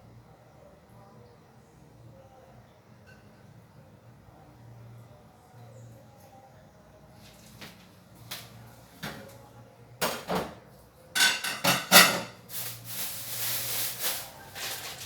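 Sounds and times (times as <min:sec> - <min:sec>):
utensils clinking against dishes: 0:11.2 - 0:15.0.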